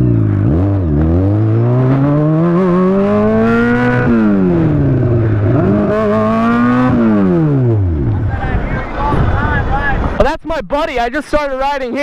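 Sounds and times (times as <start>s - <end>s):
sportbike engine accelerating: 0.0s - 8.4s.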